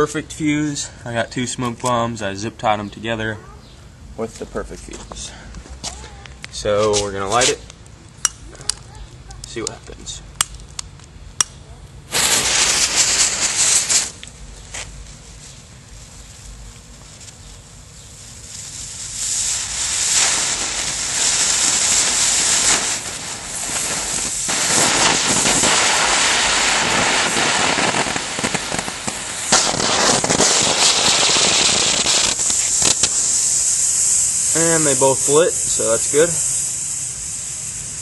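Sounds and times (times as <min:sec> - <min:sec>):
smoke bombs hissing: 0:12.1 - 0:38.0.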